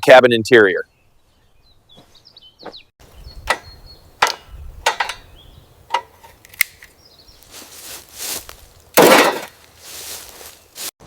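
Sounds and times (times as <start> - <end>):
hand tools knocking and clacking: 3.4 - 5.3, 5.9 - 6.4.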